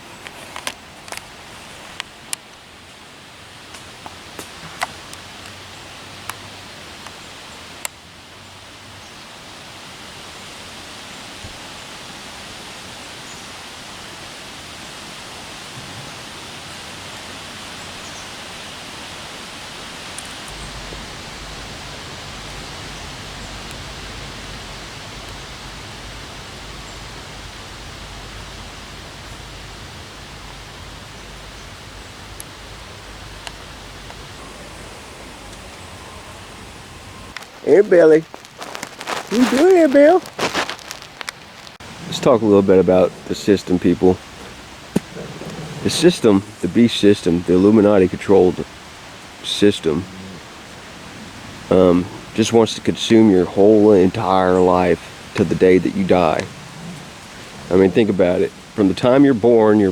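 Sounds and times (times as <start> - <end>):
outdoor ambient hiss: 0.0 - 59.9
low hum: 20.4 - 37.4.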